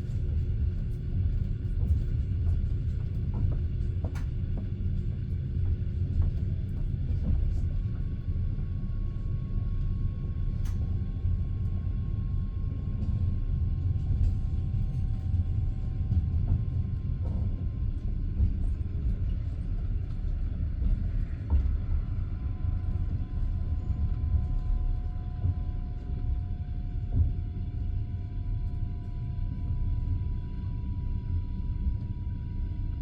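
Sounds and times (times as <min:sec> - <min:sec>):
faint steady whine: 0:00.0 - 0:33.0
train wheels rumbling on rails: 0:00.8 - 0:08.3.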